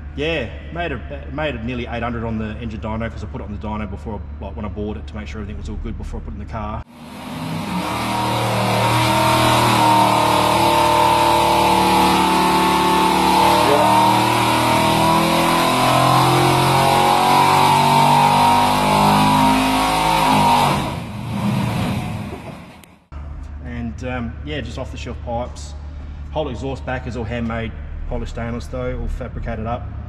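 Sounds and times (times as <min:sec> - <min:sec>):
loud engine running hard: 0:06.9 - 0:22.8.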